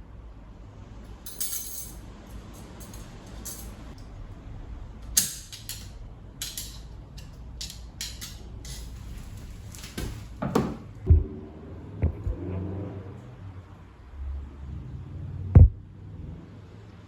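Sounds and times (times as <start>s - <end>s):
objects being handled: 5.2s - 10.9s.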